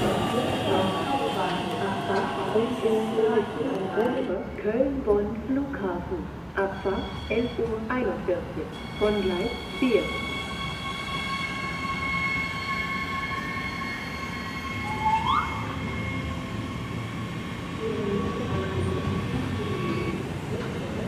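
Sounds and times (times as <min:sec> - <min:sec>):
rumble of wheels on rail: 0:00.0 - 0:21.0
short rising squeal: 0:09.6 - 0:17.3.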